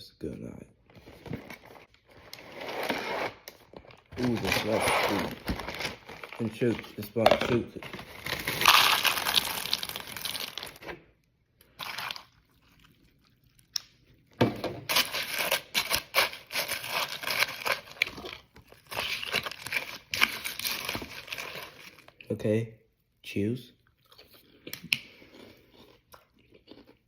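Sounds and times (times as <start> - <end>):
plastic bag crinkling: 3.7 - 10.9.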